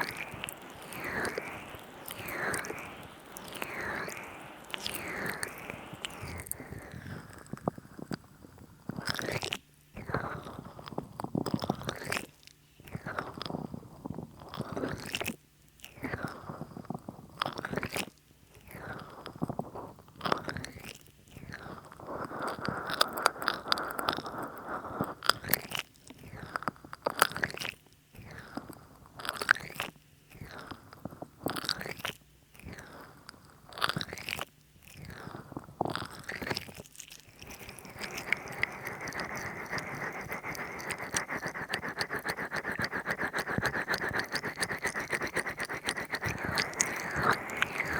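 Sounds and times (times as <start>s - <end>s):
oily hands rubbing microphone: 37.2s - 47.9s.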